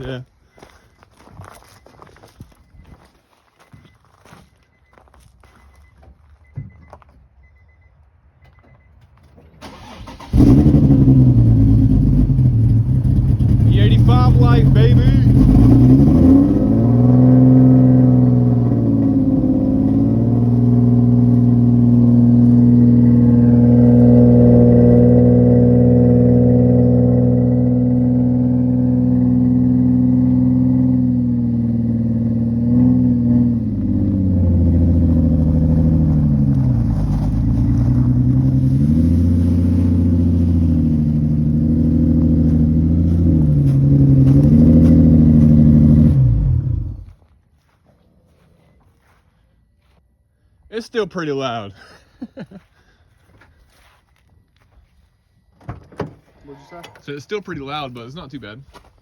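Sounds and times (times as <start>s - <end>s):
car engine revving: 9.6s - 47.2s.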